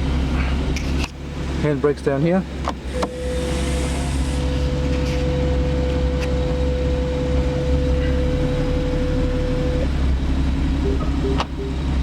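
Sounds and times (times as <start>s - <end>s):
car engine at low revs: 0.0s - 12.0s
steady electronic tone: 10.7s - 12.0s.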